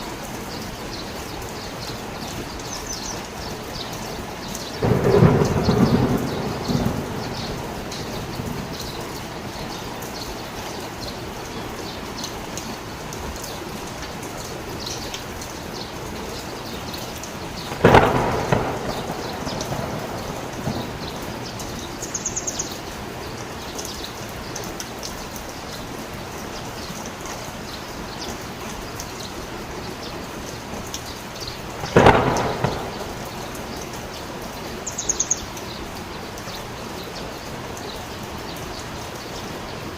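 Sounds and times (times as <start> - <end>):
heavy rain falling: 0.0 - 39.9
thunderclap rumbling: 4.8 - 10.6, 16.7 - 23.2, 31.6 - 34.3.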